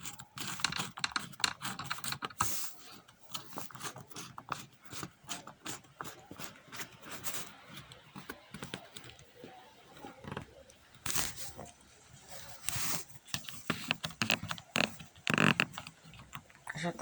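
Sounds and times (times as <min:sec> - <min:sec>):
handling clicks and knocks: 0:00.0 - 0:11.2, 0:13.2 - 0:16.9
rustling and scraping: 0:00.0 - 0:17.0.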